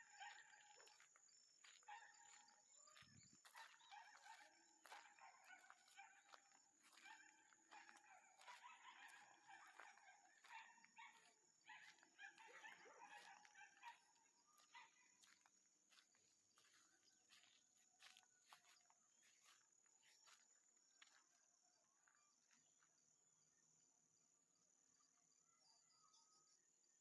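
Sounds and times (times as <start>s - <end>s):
animal calls: 1.8s - 15.2s.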